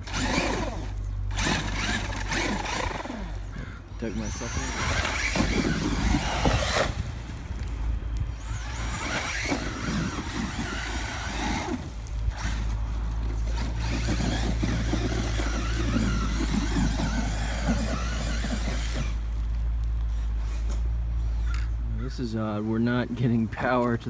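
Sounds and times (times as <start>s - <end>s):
electric motor whining: 0.0s - 20.8s
tyres churning loose dirt: 0.0s - 24.0s.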